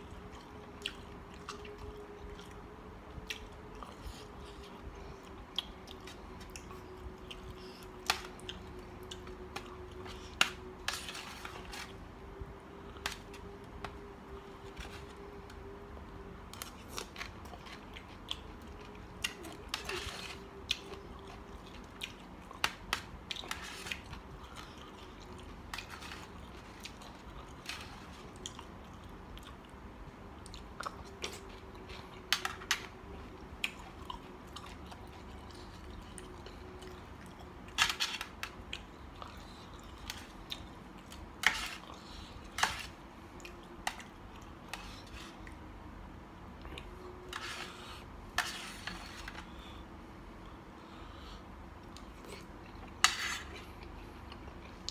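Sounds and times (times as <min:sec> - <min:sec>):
person chewing and crunching: 0:00.1 - 0:02.6, 0:16.5 - 0:45.6.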